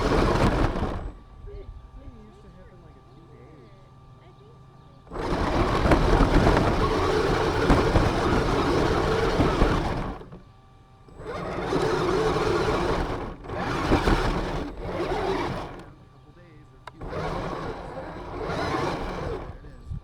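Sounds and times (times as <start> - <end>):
rc car motor and wheels rushing: 0.0 - 1.2, 5.1 - 10.5, 11.1 - 19.8.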